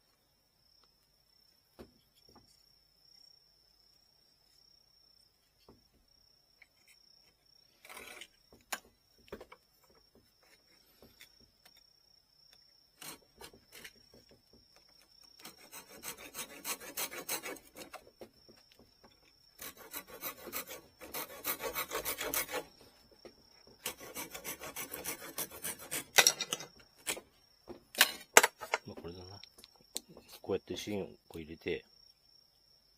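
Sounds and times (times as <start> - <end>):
file rasping strokes: 7.8 - 8.3, 13.0 - 14.1, 15.3 - 18.1, 19.6 - 23.0, 23.8 - 27.2.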